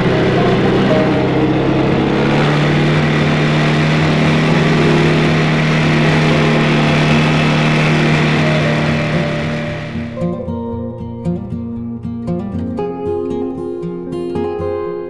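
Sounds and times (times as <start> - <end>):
atv engine running: 0.0 - 10.2.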